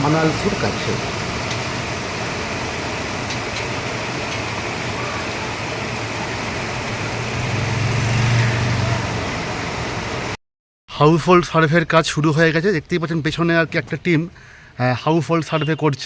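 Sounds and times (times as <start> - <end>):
vehicle engine running: 0.0 - 10.4.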